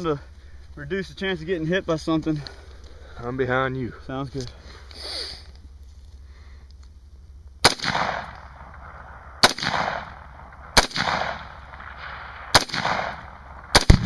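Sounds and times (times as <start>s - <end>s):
rifle shots with rolling echo: 7.6s - 14.0s.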